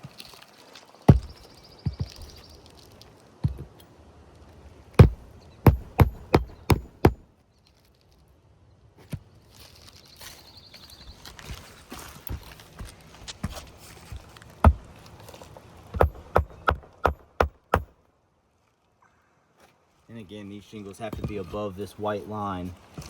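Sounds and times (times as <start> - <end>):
hammer striking nail: 1.1 - 2.1, 5.0 - 7.2, 16.0 - 17.9.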